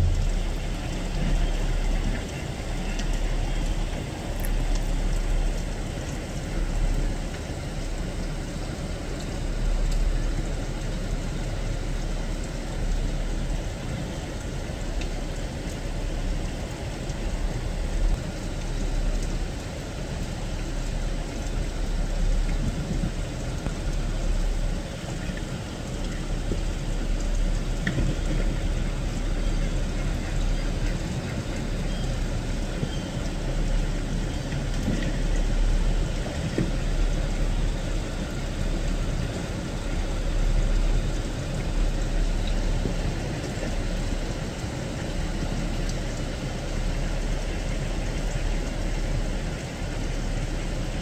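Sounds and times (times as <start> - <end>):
low rumble: 0.0 - 3.8
rain falling on wet ground: 0.0 - 51.0.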